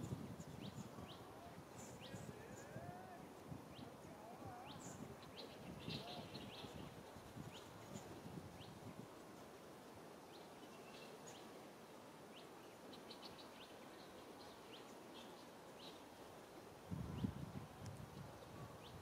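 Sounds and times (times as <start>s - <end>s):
small birds chirping: 4.5s - 8.8s.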